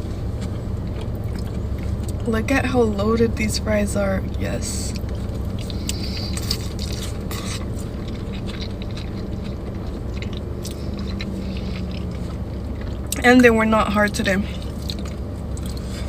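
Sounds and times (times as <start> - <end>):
person chewing fries: 0.0 - 2.2, 4.3 - 16.0
steady low hum: 0.0 - 16.0
wet mouth clicks and crackles: 0.4 - 2.2, 4.9 - 13.3, 14.6 - 16.0.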